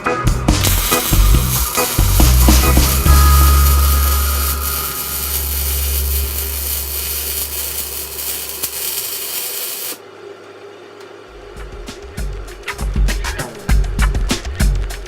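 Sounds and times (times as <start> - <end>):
background music: 0.0 - 7.4
steady hissing noise: 0.6 - 10.0.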